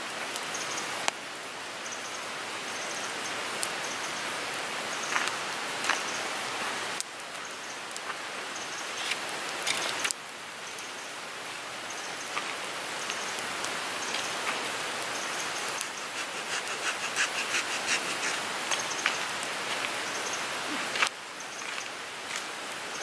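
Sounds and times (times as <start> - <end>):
wood fire crackling: 12.2 - 20.1.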